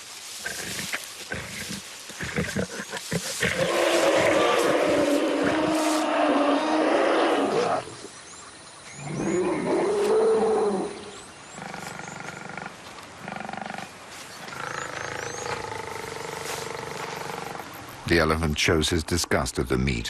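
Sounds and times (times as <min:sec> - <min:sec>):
small birds chirping faintly: 0:00.0 - 0:20.0
lions growling and snarling: 0:00.4 - 0:08.1.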